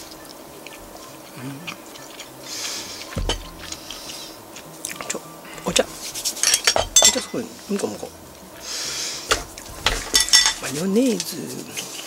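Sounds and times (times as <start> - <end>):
person chewing rice: 0.0 - 6.4
breathy hiss: 0.0 - 11.0
dull thump: 3.1 - 3.6.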